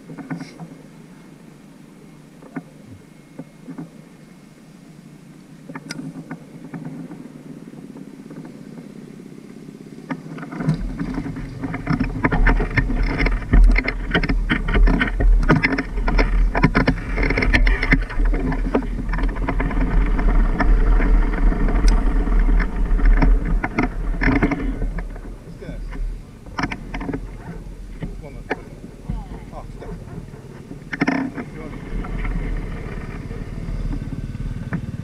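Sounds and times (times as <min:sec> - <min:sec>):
motorcycle engine rumble: 0:00.0 - 0:35.0
wind buffeting: 0:06.2 - 0:35.0
rattling knocks: 0:10.1 - 0:35.0.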